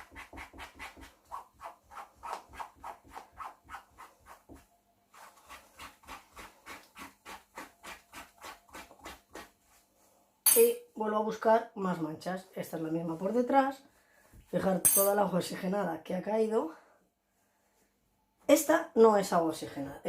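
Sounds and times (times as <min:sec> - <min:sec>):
bedsheet being rubbed by hand: 0:00.0 - 0:10.3.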